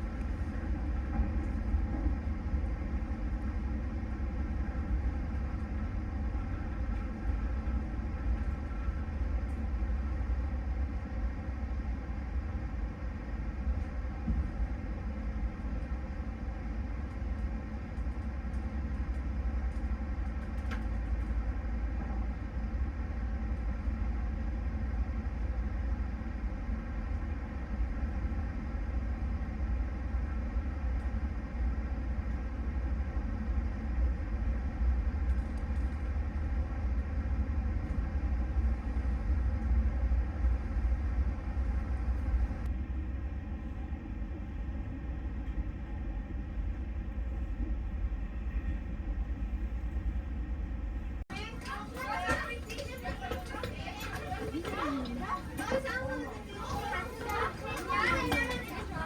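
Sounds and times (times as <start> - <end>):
train rumble inside carriage: 0.0 - 59.0.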